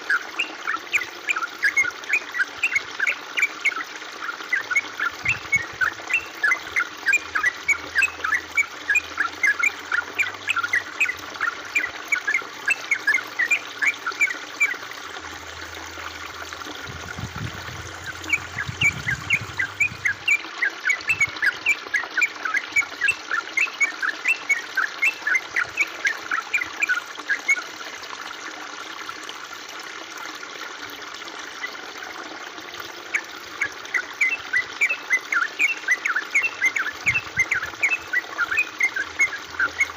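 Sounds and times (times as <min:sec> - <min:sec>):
water trickling: 0:00.0 - 0:39.9
bird chirping: 0:17.7 - 0:21.6.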